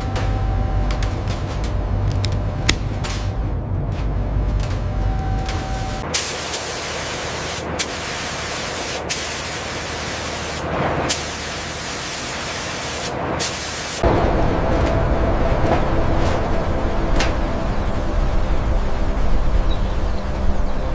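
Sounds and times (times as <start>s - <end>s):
spraying hiss: 6.1s - 14.0s
low rough noise: 14.0s - 20.9s.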